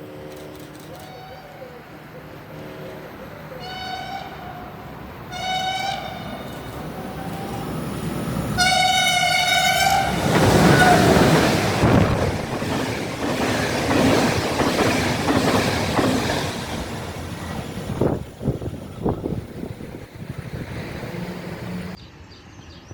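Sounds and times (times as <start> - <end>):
train horn: 3.6 - 7.7, 8.6 - 11.3
train wheels rumbling on rails: 5.2 - 22.0.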